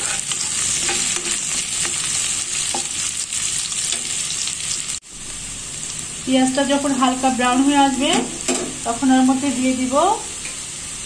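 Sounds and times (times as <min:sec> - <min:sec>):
spatula scraping a pan: 0:00.0 - 0:04.3
onions sizzling in hot oil: 0:00.0 - 0:11.0.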